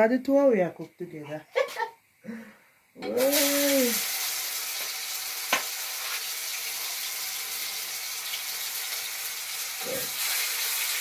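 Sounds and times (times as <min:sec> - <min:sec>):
chicken sizzling in oil: 0:03.2 - 0:11.0
sharp tap: 0:05.5 - 0:05.7.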